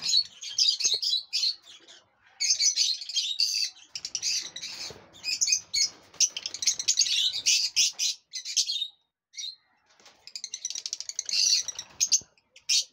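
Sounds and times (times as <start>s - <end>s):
lovebirds chirping and chattering: 0.0s - 12.9s.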